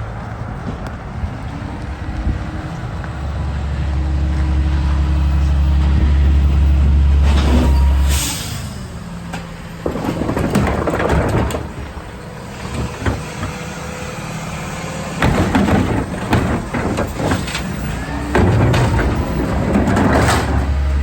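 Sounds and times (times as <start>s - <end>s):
garbage truck engine rumbling: 0.0s - 21.0s
knocks and clatters: 9.2s - 21.0s.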